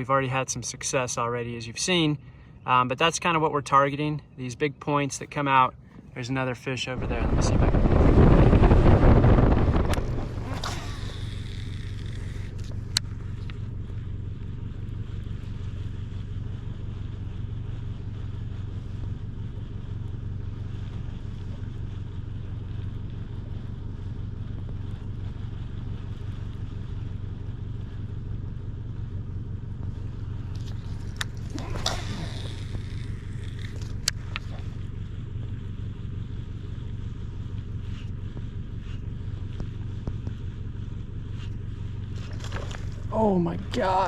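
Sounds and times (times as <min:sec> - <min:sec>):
boat motor humming: 0:02.0 - 0:44.0
brief swishing: 0:09.0 - 0:12.6.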